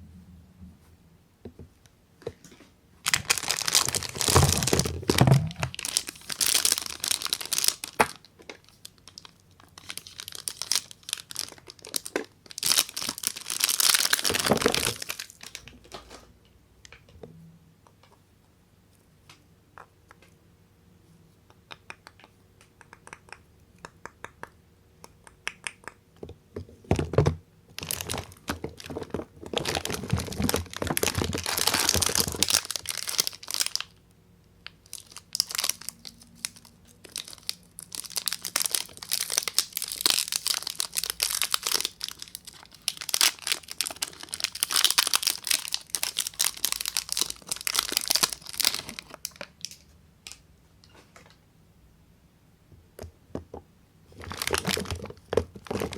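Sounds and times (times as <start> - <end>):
wrapper crinkling and tearing: 3.0 - 16.2, 27.7 - 34.0, 34.6 - 50.4, 54.2 - 55.9.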